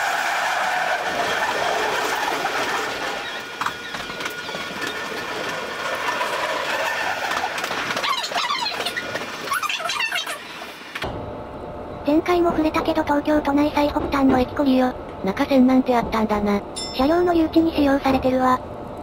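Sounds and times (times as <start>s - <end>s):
train wheels rolling on rail: 0.0s - 11.1s.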